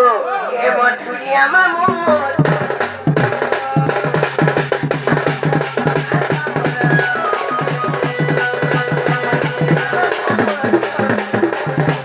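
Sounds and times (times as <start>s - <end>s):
fast dense drumming: 1.9s - 12.0s.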